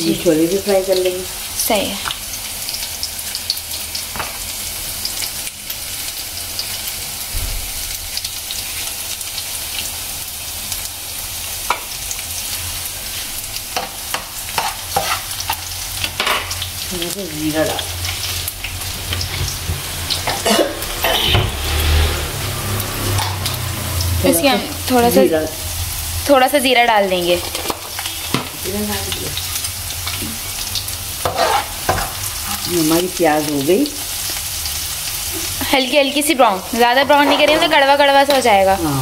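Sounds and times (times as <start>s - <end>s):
onions sizzling in oil: 0.0s - 39.0s.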